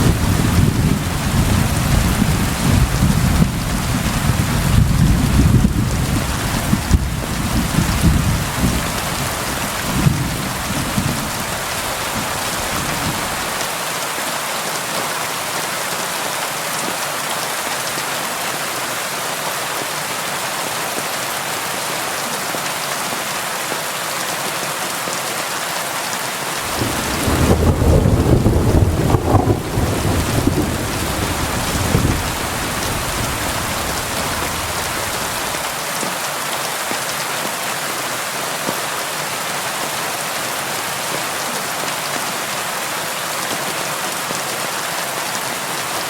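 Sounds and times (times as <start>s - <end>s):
thunder rumbling: 0.0s - 13.6s, 26.6s - 35.7s
heavy rain: 0.0s - 46.0s.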